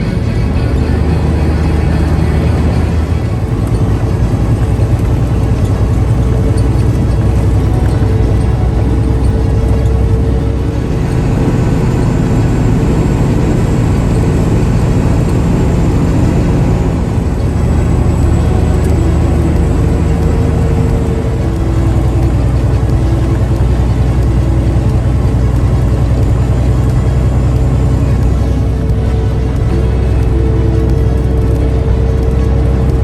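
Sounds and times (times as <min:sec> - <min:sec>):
road noise: 0:00.0 - 0:33.0
vehicle engine drone: 0:00.0 - 0:33.0.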